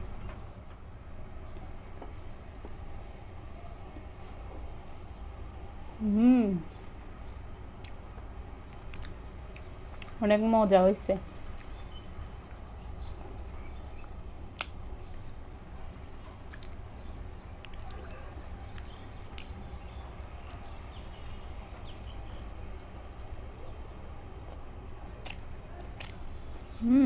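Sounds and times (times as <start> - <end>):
steady low hum: 0.0 - 27.0
quiet chewing: 7.7 - 10.2, 11.2 - 27.0.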